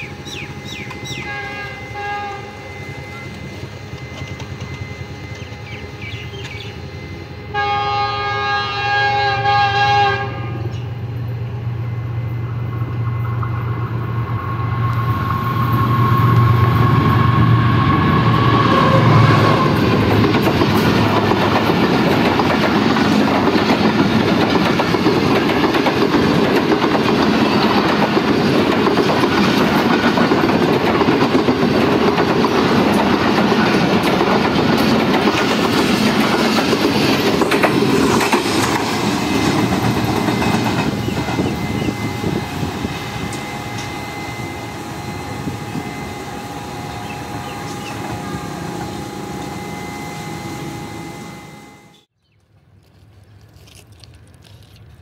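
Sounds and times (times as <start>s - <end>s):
diesel locomotive engine drone: 0.0s - 55.0s
train wheels clickety-clack: 3.3s - 6.7s, 19.2s - 42.1s.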